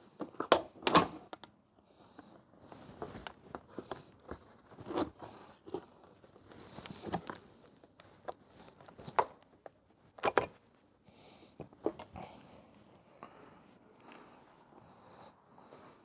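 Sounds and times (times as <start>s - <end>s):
rustling and crinkling: 2.1s - 11.0s.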